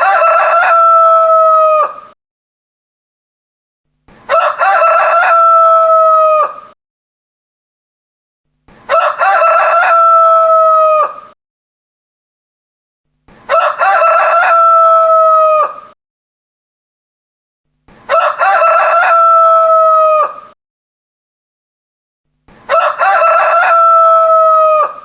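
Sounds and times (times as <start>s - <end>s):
rooster crowing: 0.0s - 2.2s, 4.3s - 6.8s, 8.9s - 11.4s, 13.5s - 16.0s, 18.1s - 20.6s, 22.7s - 25.0s.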